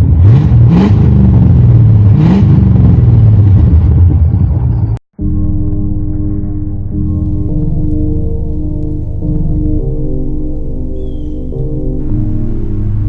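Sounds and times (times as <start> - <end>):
loud truck engine revving: 0.0 - 4.0, 12.0 - 13.0
ambient music: 5.2 - 13.0.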